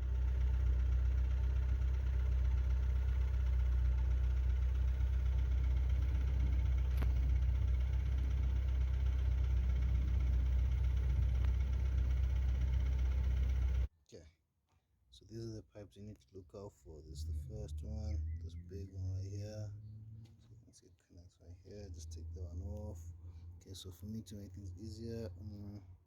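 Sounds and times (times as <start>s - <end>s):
car engine idling: 0.0s - 13.9s, 21.4s - 26.0s.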